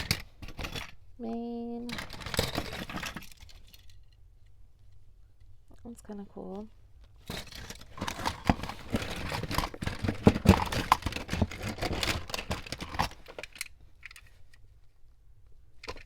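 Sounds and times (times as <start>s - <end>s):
toy cars clattering: 0.0s - 4.6s, 7.1s - 14.7s, 15.8s - 16.0s
packaging crinkling: 7.3s - 14.2s.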